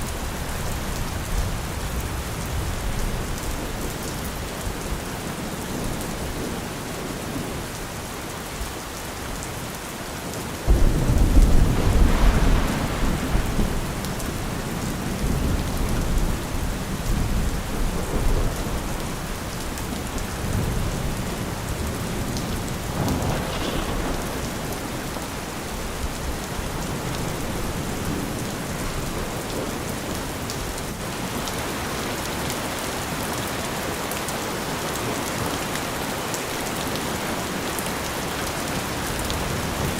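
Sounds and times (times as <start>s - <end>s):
steady rain falling: 0.0s - 39.9s
thunder rumbling: 10.6s - 31.0s.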